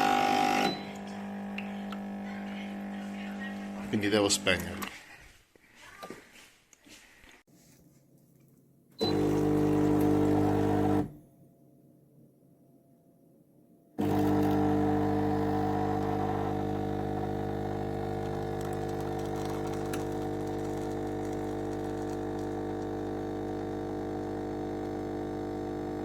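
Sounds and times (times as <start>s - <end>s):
espresso machine pump humming: 0.0s - 4.4s, 9.0s - 11.2s, 14.0s - 26.0s.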